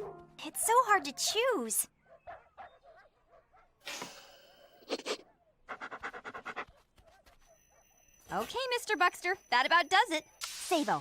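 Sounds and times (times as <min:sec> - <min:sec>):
dog panting: 0:05.7 - 0:07.2.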